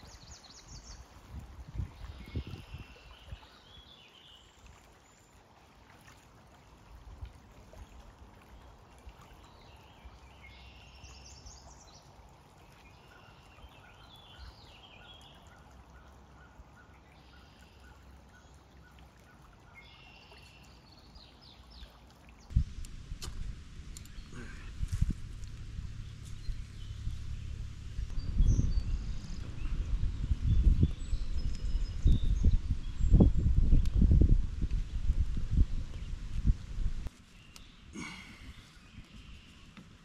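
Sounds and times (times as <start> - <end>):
birds chirping: 23.3 - 33.5, 37.2 - 40.0.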